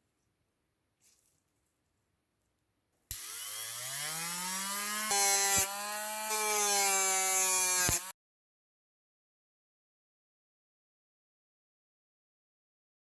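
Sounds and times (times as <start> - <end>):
rotary tool whining: 3.1 - 8.1.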